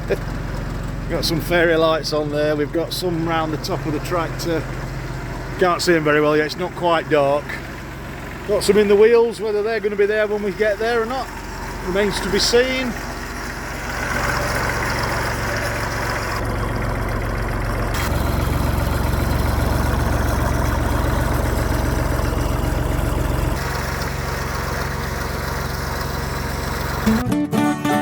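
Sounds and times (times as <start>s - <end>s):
tractor diesel engine idling: 0.0s - 27.3s.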